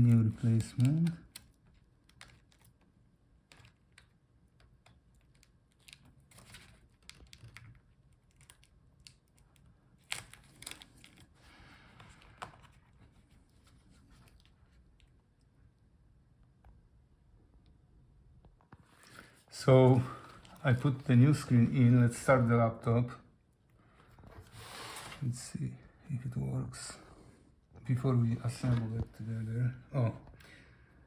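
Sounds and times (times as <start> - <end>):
plastic rustling: 0.0 - 15.2, 18.8 - 22.2.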